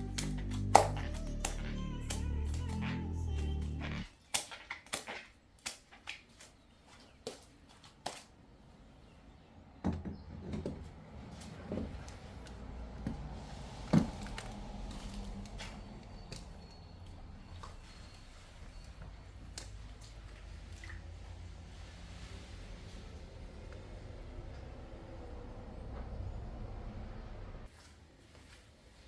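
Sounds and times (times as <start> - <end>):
low steady hum: 0.0 - 4.1.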